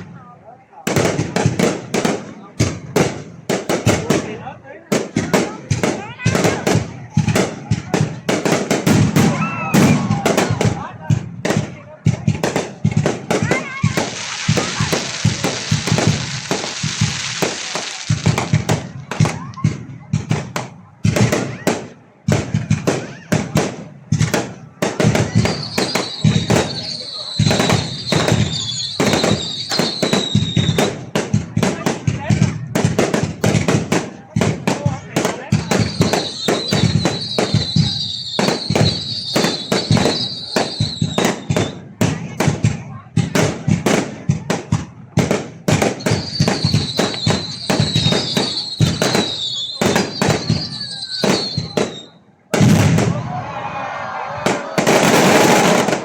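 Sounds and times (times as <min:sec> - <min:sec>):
fireworks banging: 0:00.0 - 0:56.0
high steady whistle: 0:25.5 - 0:30.8.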